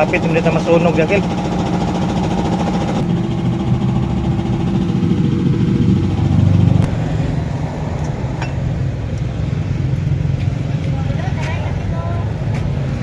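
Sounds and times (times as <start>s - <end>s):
motor humming: 0.0s - 7.0s.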